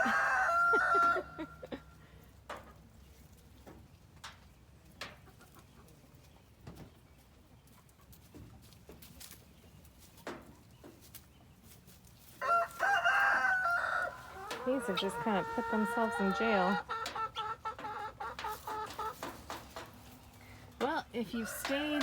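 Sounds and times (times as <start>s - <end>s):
rooster crowing: 0.0s - 1.6s, 12.4s - 16.8s
chickens clucking: 0.0s - 22.0s.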